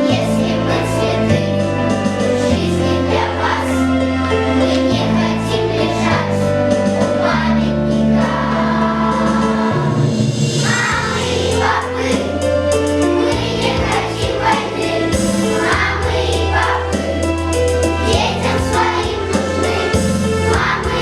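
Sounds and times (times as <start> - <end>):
choir singing: 0.0 - 21.0
instrumental accompaniment: 0.0 - 21.0.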